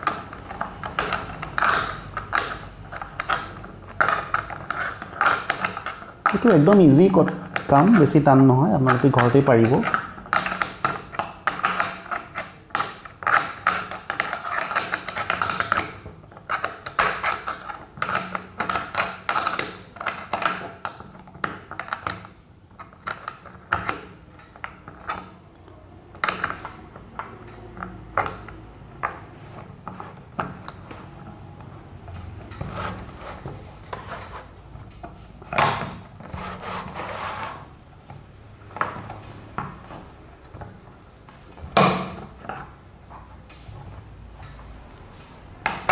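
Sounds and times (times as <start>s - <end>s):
metal parts clicking and knocking: 0.0s - 36.4s.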